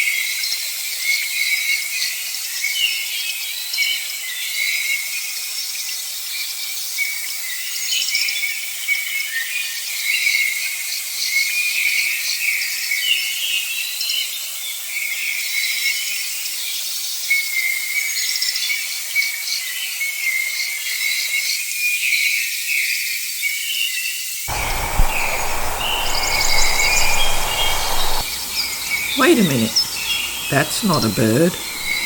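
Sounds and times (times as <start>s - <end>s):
high-pitched insect chorus: 24.5s - 30.5s
low rumbling noise: 24.5s - 30.5s
bird calls: 24.5s - 32.0s.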